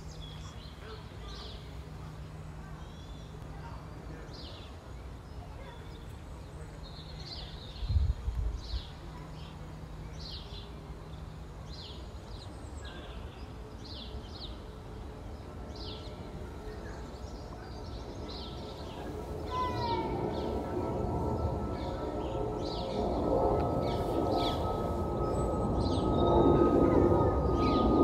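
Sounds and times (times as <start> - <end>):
low background rumble: 0.0 - 28.0.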